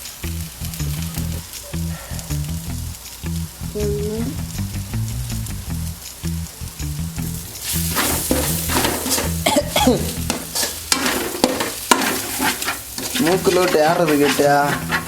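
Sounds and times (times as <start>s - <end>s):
curry sizzling in a pan: 0.0s - 15.0s
spoon stirring and scraping: 7.6s - 15.0s.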